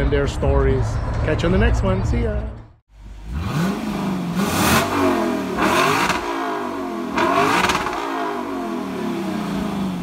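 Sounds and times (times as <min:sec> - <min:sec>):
car engine revving: 0:03.0 - 0:10.0.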